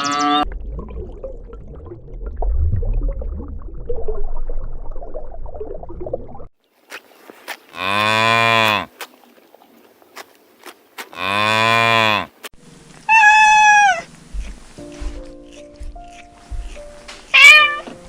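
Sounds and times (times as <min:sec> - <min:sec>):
cow mooing: 0:07.8 - 0:08.9, 0:11.1 - 0:12.3.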